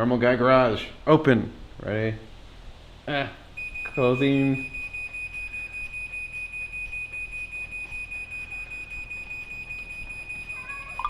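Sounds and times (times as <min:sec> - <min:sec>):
rapid high-pitched warning beeps: 0:03.6 - 0:11.0.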